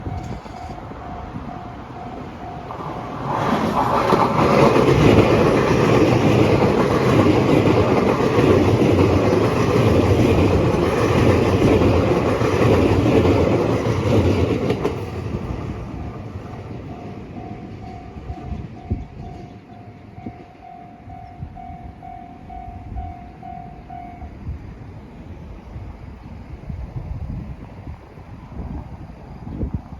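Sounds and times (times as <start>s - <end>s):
level crossing warning bell: 0.0s - 3.3s, 16.0s - 24.4s
electric train passing: 0.0s - 29.9s.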